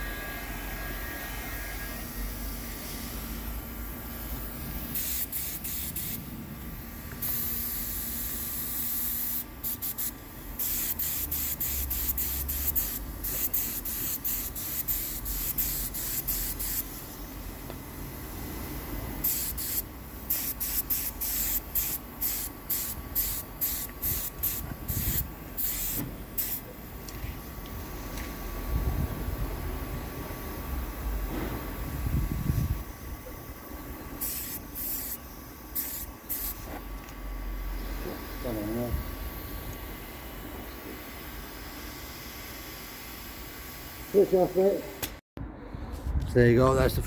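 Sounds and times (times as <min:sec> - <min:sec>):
paint spray gun hissing: 0:00.0 - 0:26.8, 0:34.0 - 0:36.7
steady low hum: 0:00.0 - 0:47.0.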